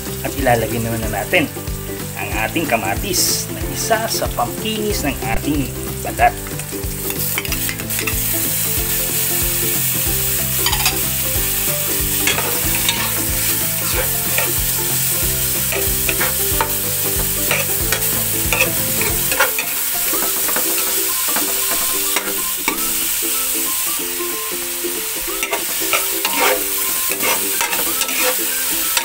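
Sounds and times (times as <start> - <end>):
vegetables sizzling in hot oil: 0.0 - 29.0
metal spatula scraping pan: 10.6 - 23.0, 25.3 - 29.0.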